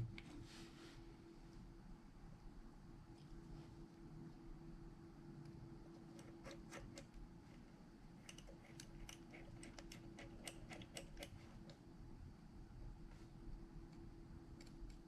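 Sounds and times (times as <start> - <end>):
steady low hum: 0.0 - 15.0
faint small clicks and taps: 13.9 - 15.0.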